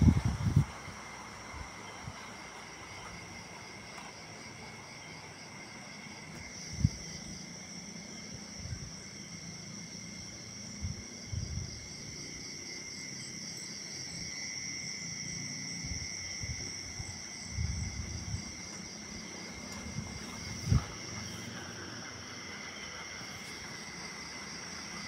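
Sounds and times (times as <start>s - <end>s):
night insects trilling: 0.0s - 25.0s
pulsing insect chirp: 0.0s - 25.0s
low bumps: 16.5s - 24.7s.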